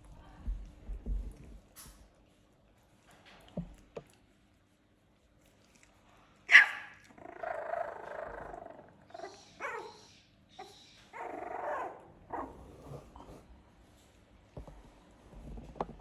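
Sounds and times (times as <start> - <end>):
puppies yapping: 6.5 - 7.0
puppy barking: 6.5 - 7.1, 9.1 - 12.6
puppies growling: 6.6 - 9.9, 11.1 - 13.3.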